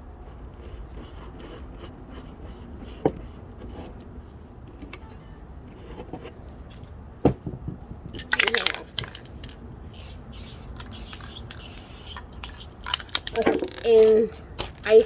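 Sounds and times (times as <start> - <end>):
steady low hum: 0.0 - 15.0
small objects knocking and tapping: 6.8 - 9.6, 10.8 - 15.0.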